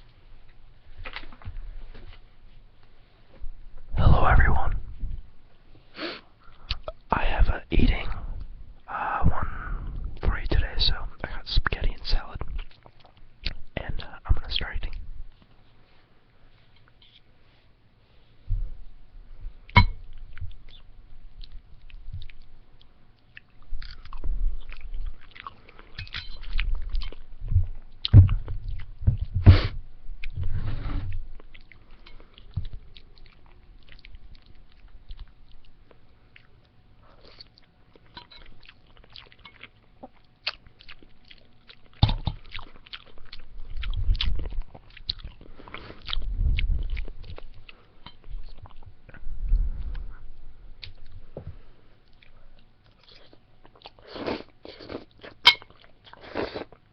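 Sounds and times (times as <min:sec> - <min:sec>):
close-up chewing food: 0:11.9 - 0:13.7, 0:19.6 - 0:29.4, 0:31.1 - 0:56.9.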